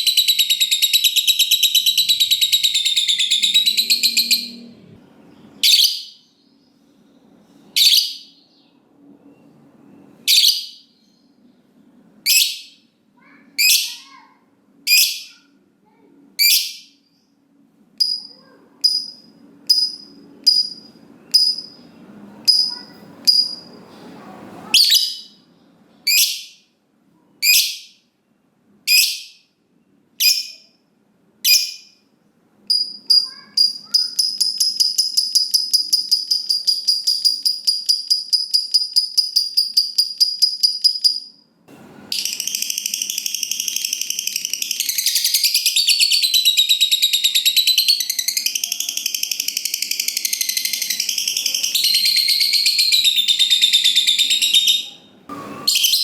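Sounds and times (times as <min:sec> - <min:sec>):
lovebird calling and trilling: 0:00.0 - 0:06.7, 0:07.7 - 0:11.3, 0:12.2 - 0:12.8, 0:13.6 - 0:14.2, 0:14.9 - 0:15.4, 0:16.4 - 0:17.0, 0:24.7 - 0:25.5, 0:26.1 - 0:26.6, 0:27.4 - 0:28.0, 0:28.9 - 0:29.5, 0:30.2 - 0:30.7, 0:31.4 - 0:32.0, 0:32.7 - 0:41.4, 0:42.1 - 0:56.0.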